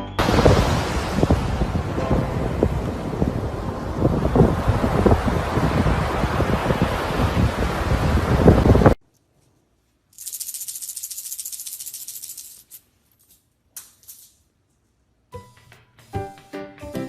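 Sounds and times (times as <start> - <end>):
music: 0.0 - 0.2, 2.0 - 2.8, 15.3 - 17.0
wind-like rushing noise: 0.2 - 9.0
dry rapid rattling: 10.2 - 12.8.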